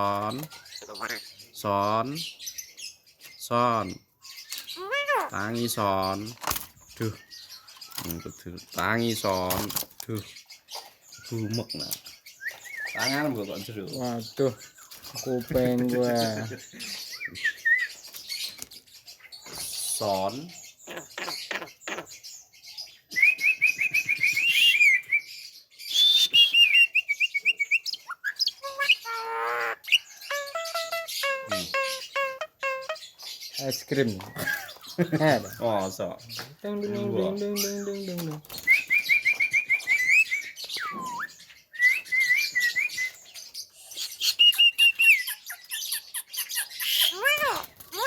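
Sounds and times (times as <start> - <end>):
bird chirping and whistling: 11.3 - 13.6, 16.0 - 18.6, 23.1 - 33.6, 38.6 - 48.0
myna whistling: 25.9 - 29.1, 38.6 - 43.2, 44.2 - 45.4.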